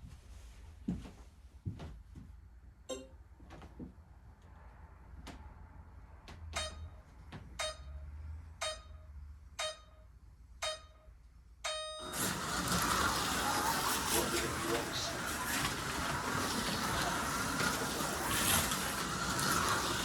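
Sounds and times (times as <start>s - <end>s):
electronic countdown beeps: 7.6s - 8.0s, 8.6s - 12.0s.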